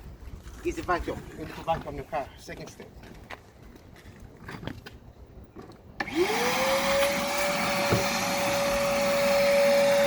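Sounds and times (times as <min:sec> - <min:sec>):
vacuum cleaner running: 0:06.0 - 0:10.0.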